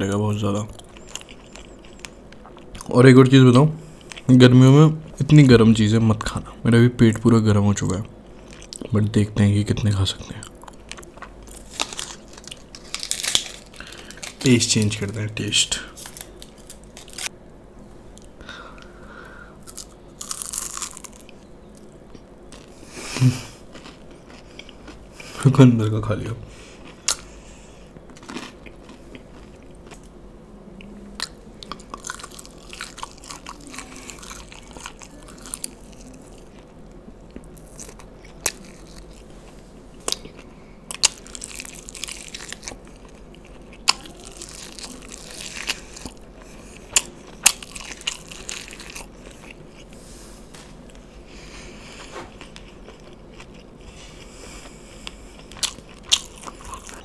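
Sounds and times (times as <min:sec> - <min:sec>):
chewing fried chicken: 0:00.7 - 0:03.0, 0:19.6 - 0:21.4, 0:23.4 - 0:25.4, 0:28.0 - 0:30.1, 0:31.2 - 0:50.0, 0:51.4 - 0:57.0
sharp crunching bites: 0:19.6 - 0:21.2.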